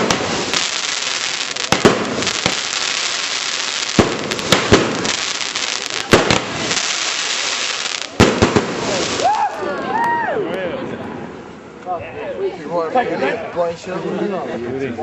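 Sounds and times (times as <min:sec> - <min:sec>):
fireworks bangs: 0:00.0 - 0:09.5
fireworks crackling hiss: 0:00.0 - 0:09.5.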